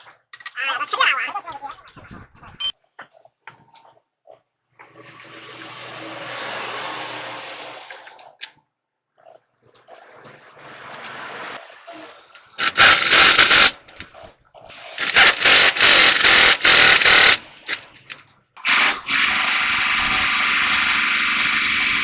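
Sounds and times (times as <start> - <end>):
pneumatic impact wrench rattling: 12.5 - 14.0, 15.0 - 21.9.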